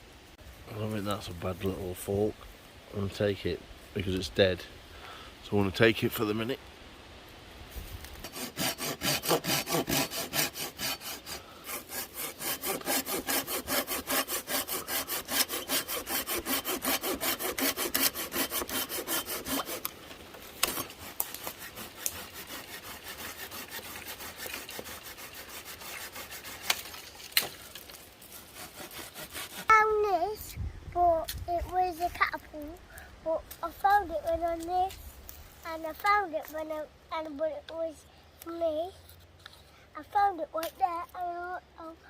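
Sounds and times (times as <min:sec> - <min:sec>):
hand saw cutting branch: 0:08.1 - 0:29.9.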